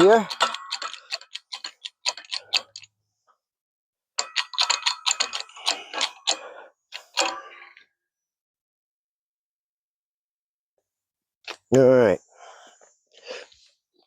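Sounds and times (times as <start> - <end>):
ratchet wrench clicking: 0.0 - 2.8, 4.2 - 6.4.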